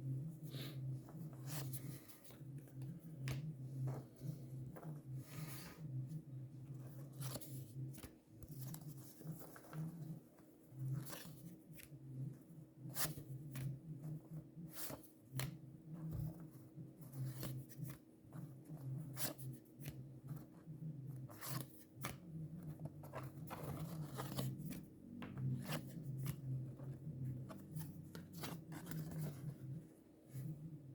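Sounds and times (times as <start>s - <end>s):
low electrical hum: 0.0s - 30.9s
paper cards flipping: 21.3s - 22.2s, 23.1s - 29.7s.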